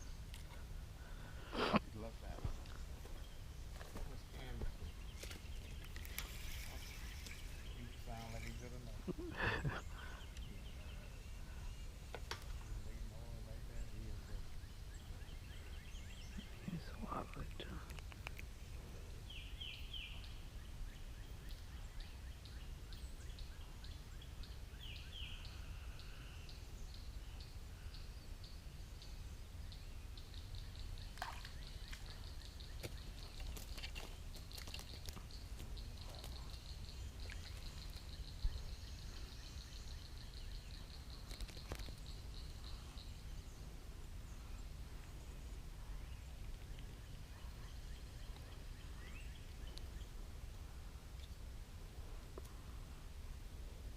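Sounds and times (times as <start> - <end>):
bird chirps: 2.0 - 18.4, 19.2 - 43.7.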